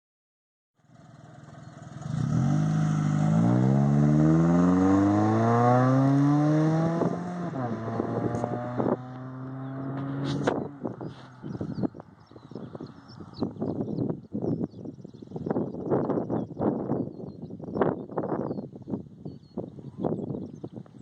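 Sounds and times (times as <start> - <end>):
car engine pulling away: 0.8 - 11.9.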